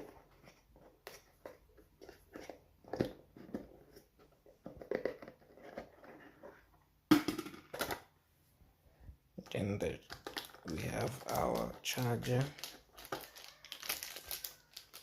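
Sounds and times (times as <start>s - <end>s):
packaging rustling and scraping: 10.1s - 15.0s.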